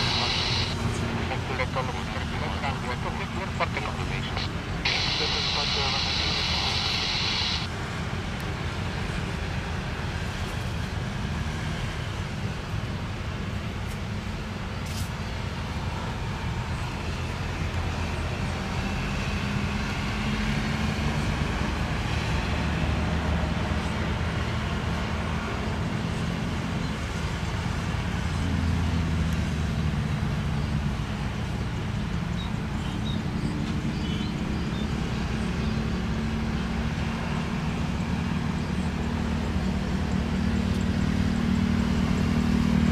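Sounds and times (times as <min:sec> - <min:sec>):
vehicle engine rumbling: 0:00.0 - 0:07.7.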